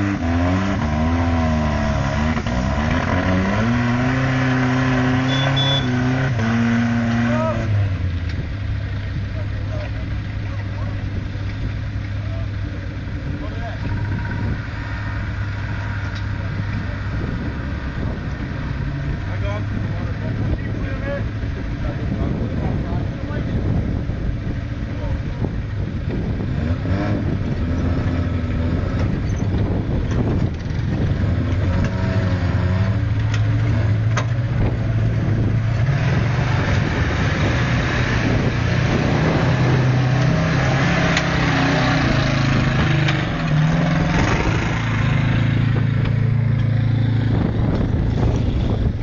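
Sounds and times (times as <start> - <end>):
off-road vehicle engine revving: 0.0 - 49.0
wind gusts on microphone: 13.3 - 31.8, 33.9 - 49.0.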